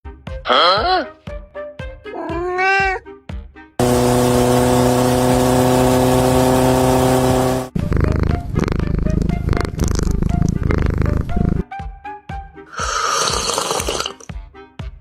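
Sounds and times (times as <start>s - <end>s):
music: 0.0s - 3.8s, 7.7s - 15.0s
steady engine-like drone: 3.8s - 7.7s.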